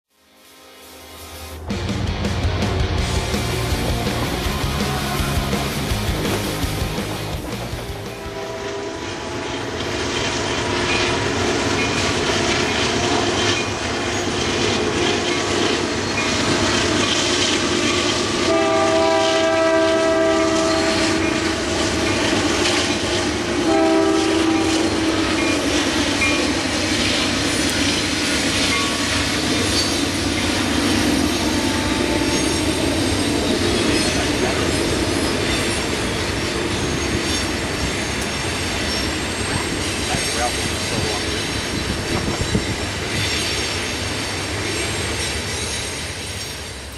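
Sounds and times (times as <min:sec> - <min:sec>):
freight train rumble and clatter: 0:01.6 - 0:46.9
locomotive horn blasts: 0:07.6 - 0:09.7, 0:18.4 - 0:21.6, 0:23.6 - 0:25.4, 0:31.3 - 0:33.0.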